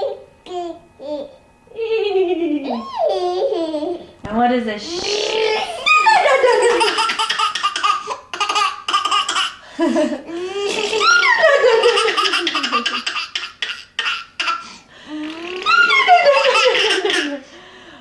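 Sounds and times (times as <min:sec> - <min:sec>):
baby laughing: 0:02.6 - 0:04.0, 0:05.1 - 0:17.5.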